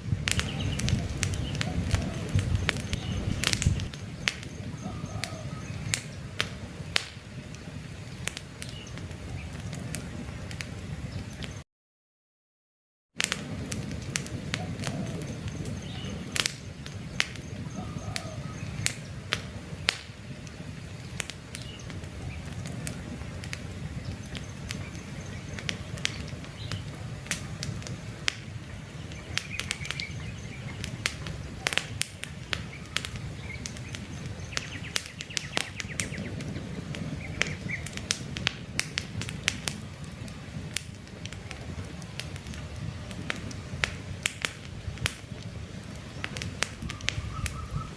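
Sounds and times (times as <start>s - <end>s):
campfire crackling and popping: 0.0s - 11.6s, 13.2s - 47.9s
faint birds chirping: 0.0s - 11.6s, 14.6s - 38.0s, 45.2s - 47.9s.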